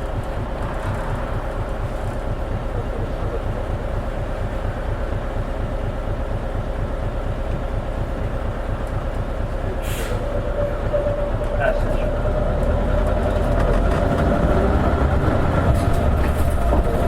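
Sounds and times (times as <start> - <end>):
bus engine rumble with whine: 0.0 - 17.0
short hiss: 9.8 - 10.2.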